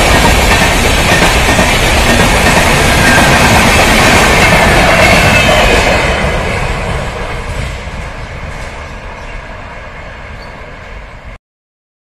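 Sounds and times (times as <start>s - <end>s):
train wheels rumbling on rails: 0.0s - 11.4s.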